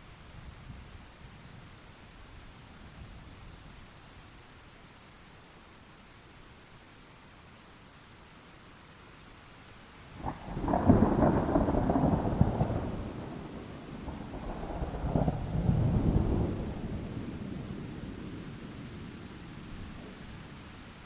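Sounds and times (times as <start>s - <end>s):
steady rain: 0.0s - 21.0s
thunderclap and rumble: 10.2s - 20.8s.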